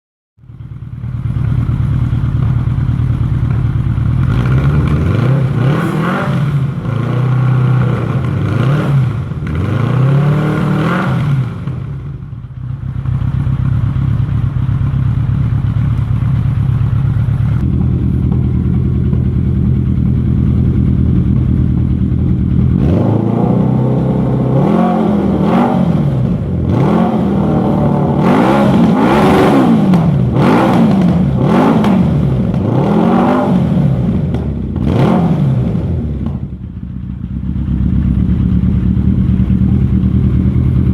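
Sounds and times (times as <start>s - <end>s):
motorcycle engine idling: 0.4s - 5.9s, 11.4s - 25.3s, 35.6s - 40.9s
motorcycle throttle blips: 0.5s - 40.9s.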